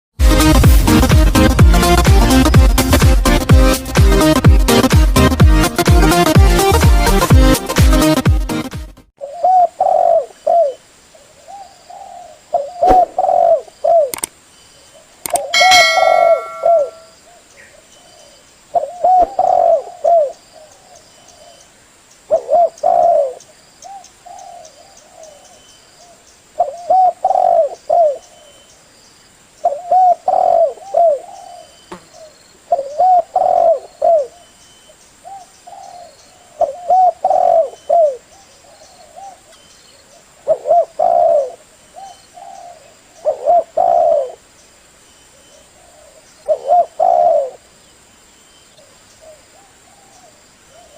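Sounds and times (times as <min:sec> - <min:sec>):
dove cooing: 0:09.2 - 0:14.2, 0:18.8 - 0:20.8, 0:22.3 - 0:24.9, 0:26.6 - 0:28.3, 0:29.6 - 0:34.4, 0:35.3 - 0:39.5, 0:40.4 - 0:44.4, 0:45.8 - 0:47.6.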